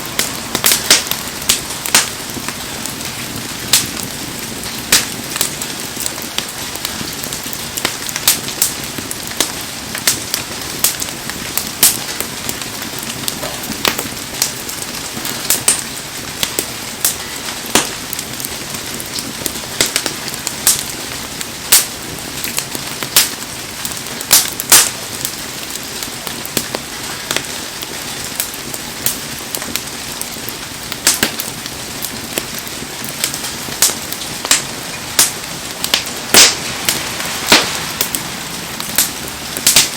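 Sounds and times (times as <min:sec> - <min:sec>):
wood fire crackling and popping: 0:00.0 - 0:39.9
heavy rain hissing: 0:31.5 - 0:39.9.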